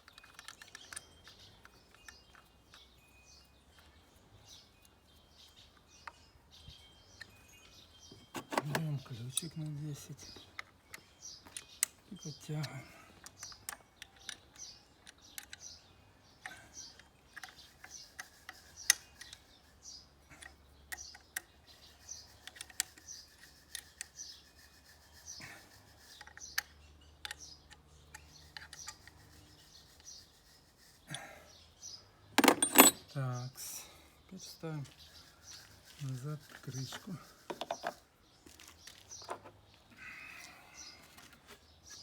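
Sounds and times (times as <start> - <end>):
small birds chirping: 0.0 - 42.0
wrench clicking on bolts: 12.6 - 15.7, 32.4 - 33.0.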